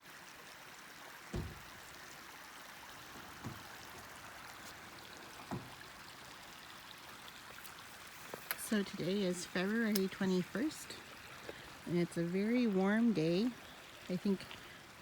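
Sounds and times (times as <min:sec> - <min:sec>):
creek water rushing: 0:00.0 - 0:15.0
dull low thumps: 0:01.3 - 0:01.9.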